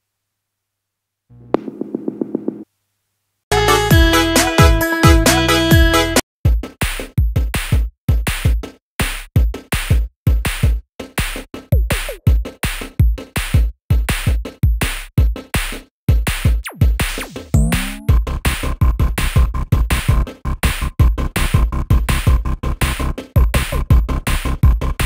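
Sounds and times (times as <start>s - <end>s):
electronic beat with deep bass: 16.7s - 18.3s.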